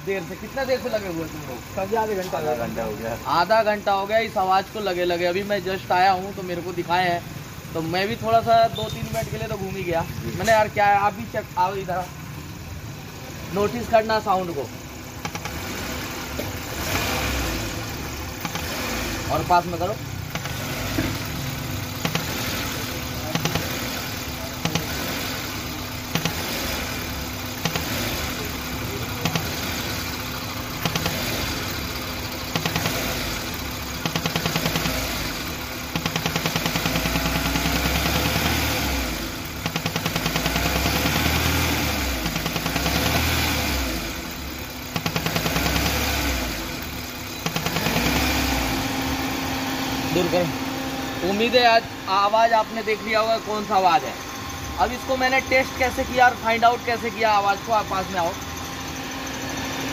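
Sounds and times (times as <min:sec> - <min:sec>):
car engine revving: 0:12.5 - 0:59.9
rapid ticking noise: 0:26.1 - 0:26.8, 0:27.5 - 0:28.1, 0:29.2 - 0:29.8, 0:30.8 - 0:31.5, 0:32.5 - 0:33.2, 0:34.0 - 0:35.1, 0:35.8 - 0:38.5.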